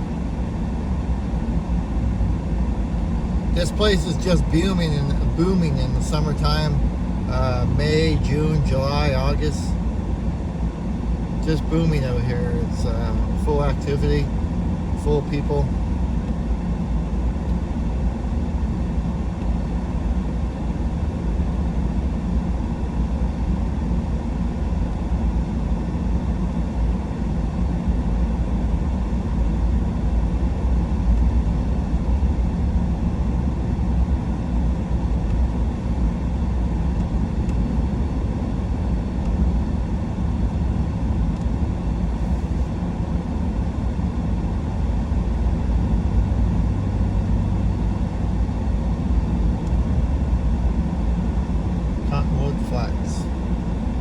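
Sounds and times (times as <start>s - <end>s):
road rumble: 0.0s - 20.2s, 35.0s - 54.0s
truck engine: 3.6s - 9.8s, 11.4s - 14.3s.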